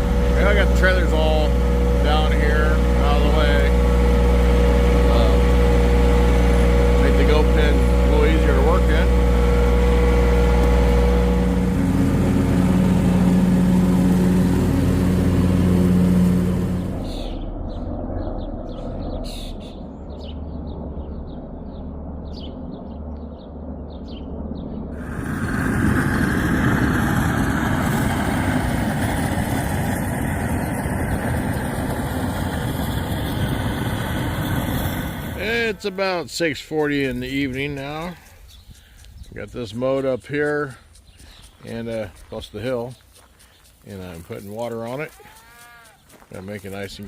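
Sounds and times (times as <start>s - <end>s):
tractor engine running: 0.0s - 17.4s, 20.7s - 47.0s
bird chirps: 17.0s - 24.9s, 35.4s - 47.0s.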